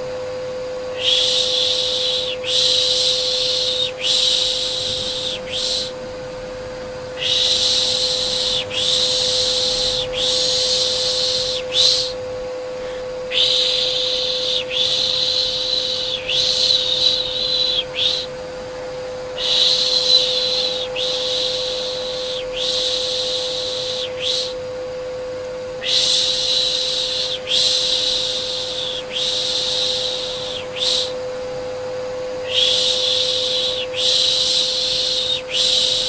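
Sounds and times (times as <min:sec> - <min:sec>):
vacuum cleaner hum: 0:00.0 - 0:36.0
person shushing: 0:01.0 - 0:06.0, 0:07.2 - 0:18.3.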